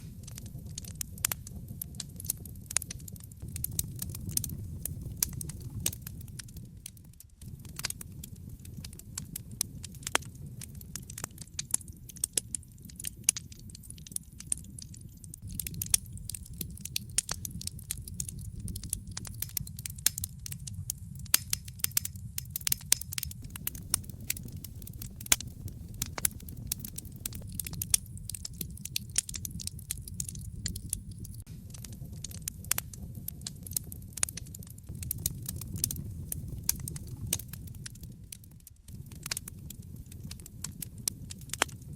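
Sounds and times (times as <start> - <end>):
wood fire crackling: 0.0 - 41.9
low rumble: 3.4 - 9.1, 15.4 - 33.8, 34.9 - 40.4.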